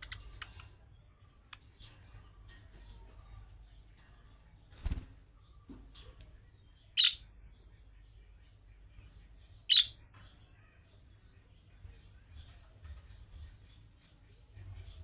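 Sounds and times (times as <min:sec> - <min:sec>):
budgerigar sharp calls: 0:07.0 - 0:07.2, 0:09.7 - 0:10.0.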